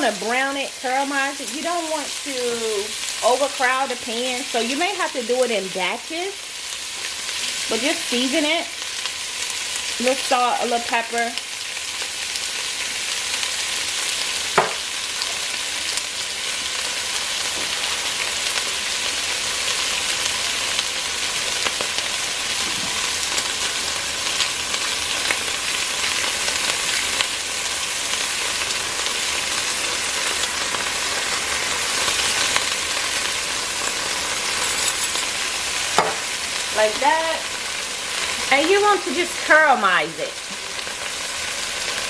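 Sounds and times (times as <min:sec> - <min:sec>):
beef sizzling in oil: 0:00.0 - 0:42.0
oil popping and crackling: 0:08.7 - 0:42.0.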